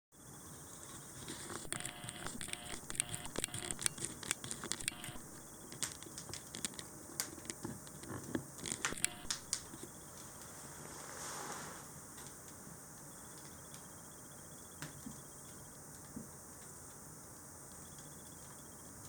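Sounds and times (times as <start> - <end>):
wood fire crackling: 3.9 - 19.0.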